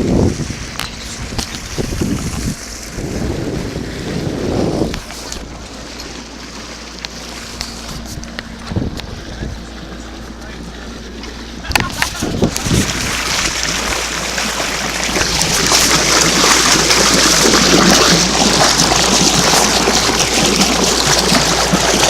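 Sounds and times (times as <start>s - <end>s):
water running and splashing: 12.0s - 22.0s.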